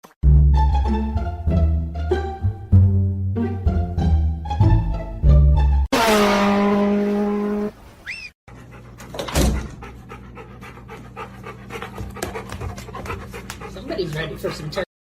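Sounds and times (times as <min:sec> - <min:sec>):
rising-and-falling chirp: 0:08.0 - 0:08.4
dog panting: 0:08.5 - 0:14.9.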